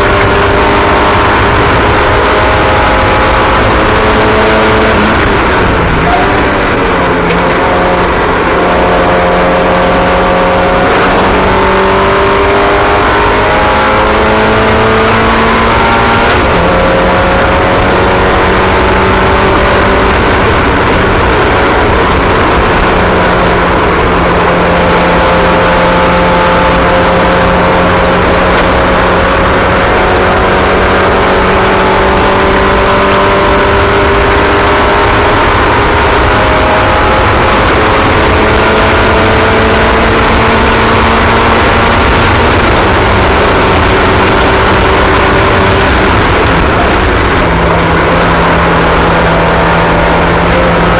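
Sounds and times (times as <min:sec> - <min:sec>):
small racing engines: 0:00.0 - 0:50.9.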